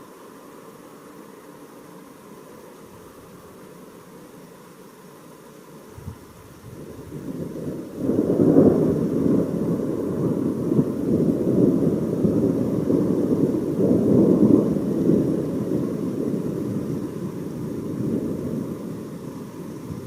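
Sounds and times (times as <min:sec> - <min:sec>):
thunder rumbling: 0:06.7 - 0:20.0.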